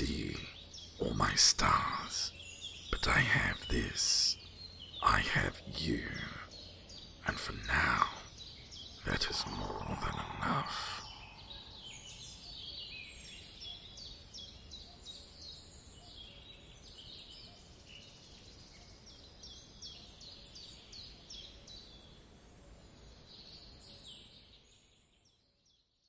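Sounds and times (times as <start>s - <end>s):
small birds chirping and singing: 0.0s - 13.0s.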